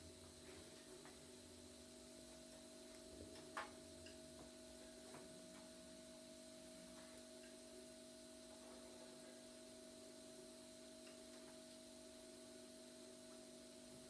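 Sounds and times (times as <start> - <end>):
faint steady hum: 0.0 - 14.0
soft ticks: 11.0 - 11.5.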